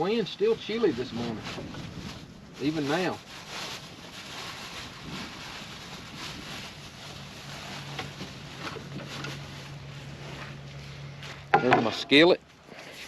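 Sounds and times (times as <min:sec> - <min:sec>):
wind noise: 0:00.4 - 0:10.0
steady low hum: 0:04.8 - 0:13.0.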